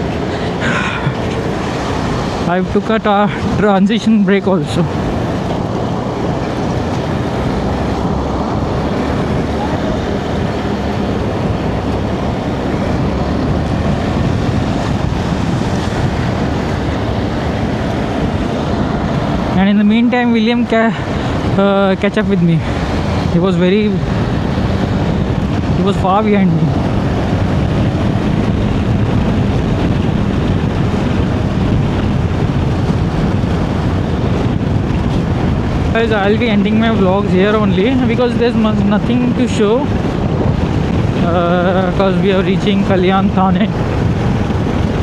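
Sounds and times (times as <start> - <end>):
road noise: 0.0 - 45.0
wind rushing over microphone: 0.0 - 45.0
motorcycle engine running: 4.3 - 39.1.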